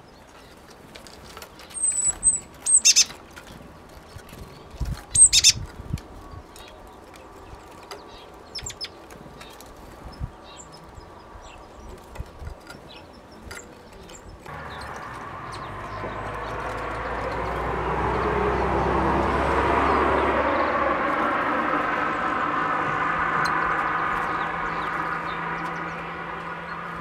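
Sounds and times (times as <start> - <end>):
birds chirping: 0.0 - 27.0
passing vehicle hum: 14.4 - 27.0.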